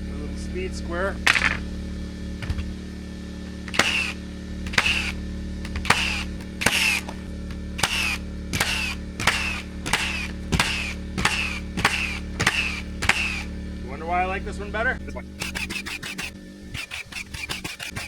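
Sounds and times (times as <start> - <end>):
nail gun firing: 2.4 - 2.7, 3.7 - 13.5, 15.3 - 18.0.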